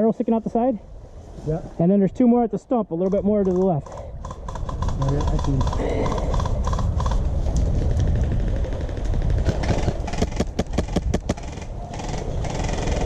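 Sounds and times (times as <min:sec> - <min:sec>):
low microphone rumble: 0:04.0 - 0:13.0.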